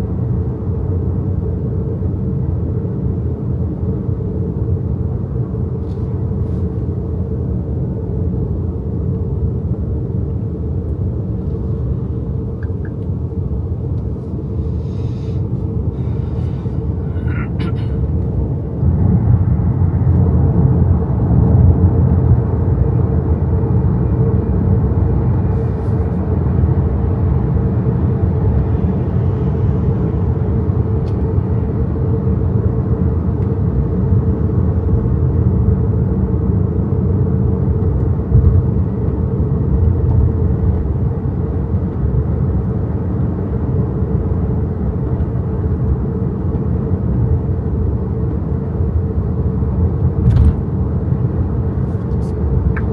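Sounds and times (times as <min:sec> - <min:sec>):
tyre and road rumble: 0:50.2 - 0:51.0.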